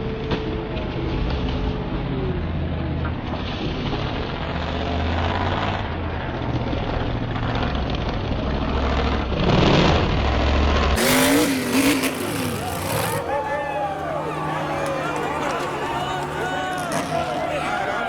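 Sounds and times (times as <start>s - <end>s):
truck engines running: 0.0s - 18.0s
engine pitch rising and falling: 10.0s - 18.0s.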